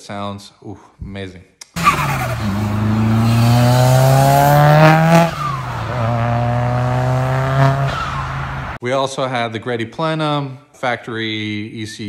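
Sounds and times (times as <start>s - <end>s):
turbocharged engine revving hard: 1.8s - 8.8s.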